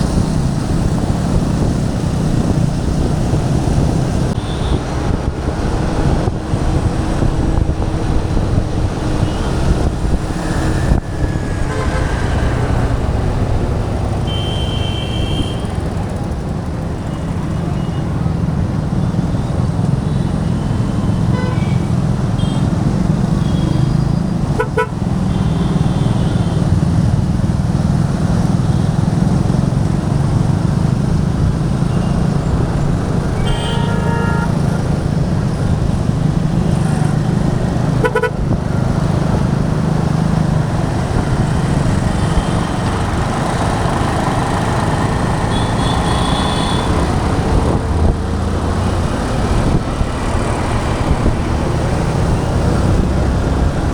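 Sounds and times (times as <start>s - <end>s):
motorcycle engine and wind rumble: 0.0s - 53.9s
vehicle horns tooting: 4.4s - 5.0s, 10.4s - 15.9s, 21.1s - 22.7s, 24.6s - 26.8s, 33.2s - 34.8s, 37.9s - 38.5s, 45.2s - 47.3s.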